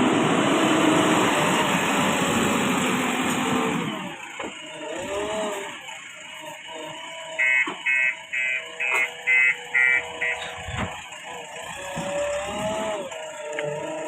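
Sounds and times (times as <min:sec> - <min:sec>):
machine hum: 0:06.6 - 0:14.0
electronic alarm beeps: 0:07.4 - 0:10.9.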